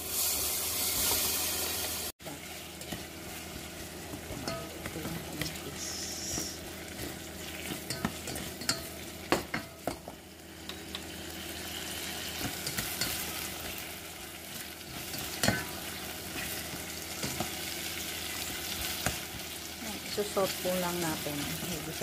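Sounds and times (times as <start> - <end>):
vegetables sizzling in a saucepan: 0.0 - 22.0
spatula scraping and knocking pot: 2.8 - 10.9, 14.9 - 17.6.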